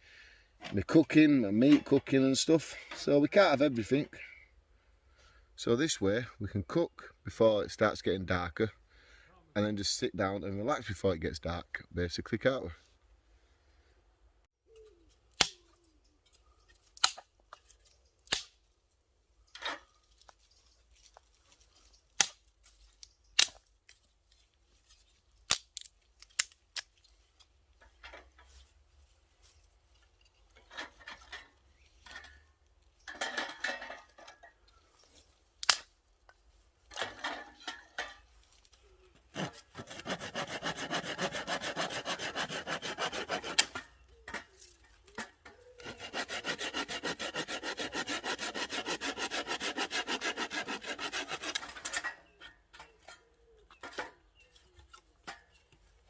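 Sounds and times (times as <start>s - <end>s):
dry sticks snapping: 18.2s - 18.6s, 22.2s - 24.0s, 25.4s - 27.1s, 35.6s - 36.4s
hand saw cutting wood: 39.2s - 44.0s, 45.6s - 52.2s.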